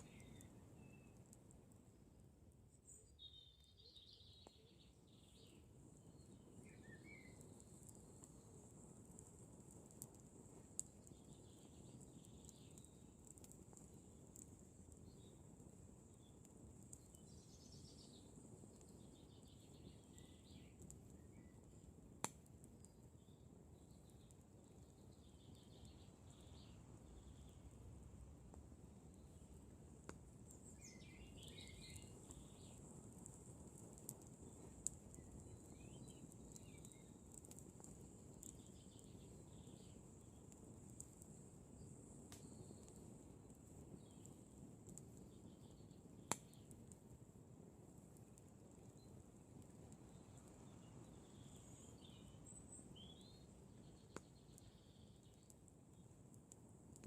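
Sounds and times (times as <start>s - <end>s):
faint chirps: 0.0s - 1.6s, 2.6s - 21.9s, 22.7s - 27.8s, 30.4s - 46.7s, 48.3s - 56.2s
campfire crackling: 0.0s - 57.0s
faint high-pitched whine: 0.0s - 57.0s.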